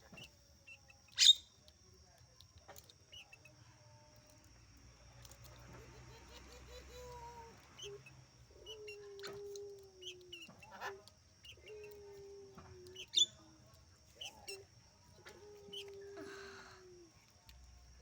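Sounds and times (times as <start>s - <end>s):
small birds chirping: 0.0s - 4.6s, 5.2s - 18.0s.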